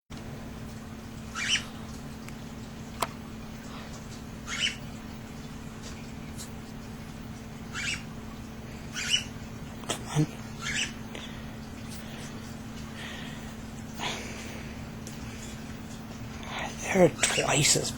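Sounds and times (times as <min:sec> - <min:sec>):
steady low hum: 0:00.1 - 0:17.9
chicks begging calls: 0:01.2 - 0:01.8, 0:04.3 - 0:05.4, 0:07.4 - 0:09.7, 0:10.4 - 0:13.6.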